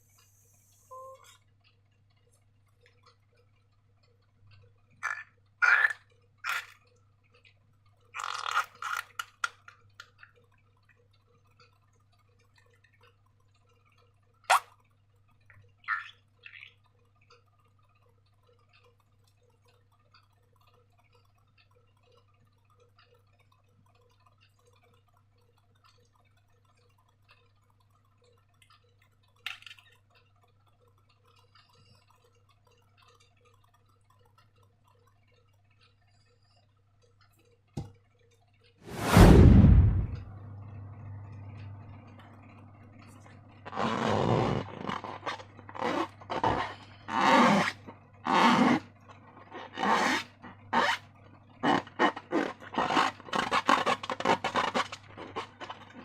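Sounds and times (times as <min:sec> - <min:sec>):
faint steady hum: 0:00.0 - 0:56.0
faint ticking: 0:09.5 - 0:38.8.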